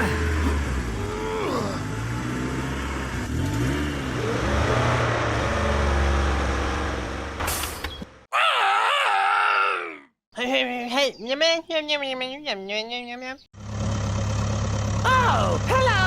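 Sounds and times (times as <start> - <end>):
heavy vehicle engine revving: 0.0 - 7.4, 13.6 - 16.0.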